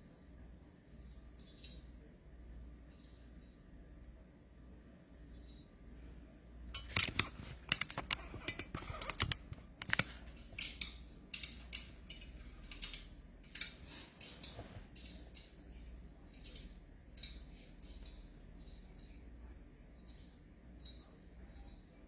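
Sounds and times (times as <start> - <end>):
crinkling handling noises: 6.8 - 10.8
sharp clicks: 6.8 - 11.9.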